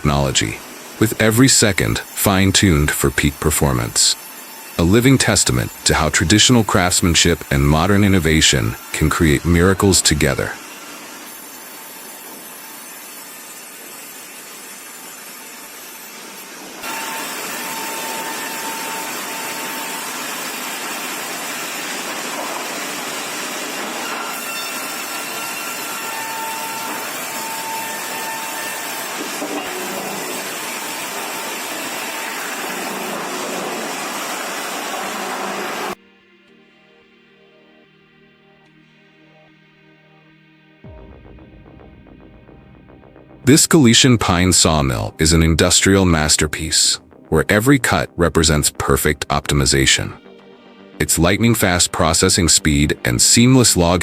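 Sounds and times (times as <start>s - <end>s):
sawmill machinery rushing noise: 0.0s - 36.0s.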